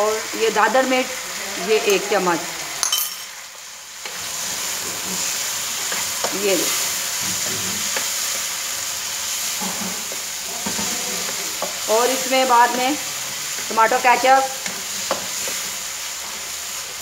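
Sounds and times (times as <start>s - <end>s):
food sizzling in a wok: 0.0s - 17.0s
wooden spatula scraping: 4.0s - 13.7s.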